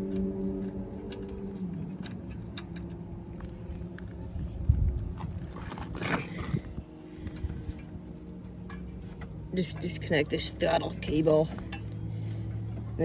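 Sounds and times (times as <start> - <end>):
tools clicking and scraping metal: 0.0 - 4.0, 7.4 - 10.0.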